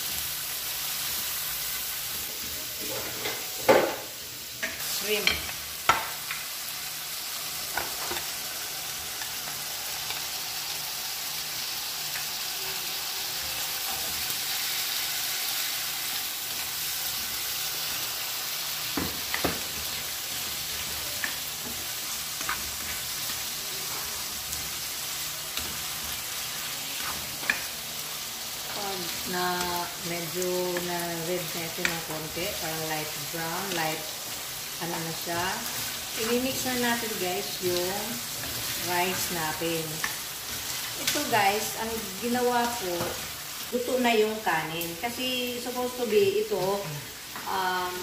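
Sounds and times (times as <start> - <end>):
seafood sizzling in a wok: 0.0 - 48.0
spatula tapping and scraping: 18.9 - 24.7, 25.5 - 27.7.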